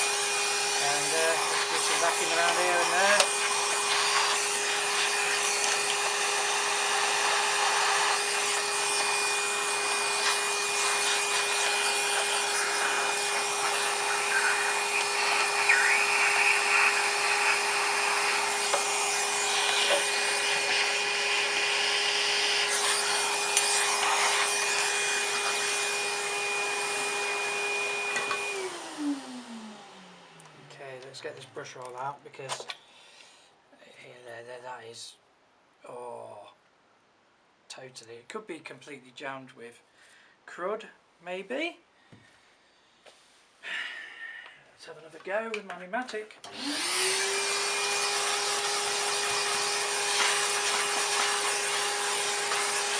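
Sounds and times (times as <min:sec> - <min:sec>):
vacuum nozzle scraping: 0:00.0 - 0:30.8, 0:46.5 - 0:52.9
vacuum cleaner whine: 0:00.0 - 0:31.4, 0:46.4 - 0:52.9.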